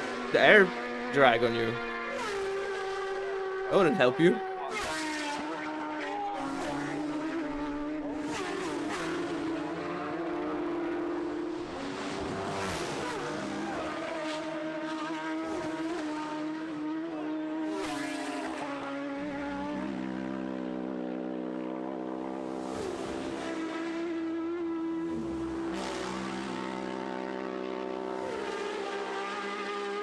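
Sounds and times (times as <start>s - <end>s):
racing motorcycle engine revving: 0.0s - 30.0s.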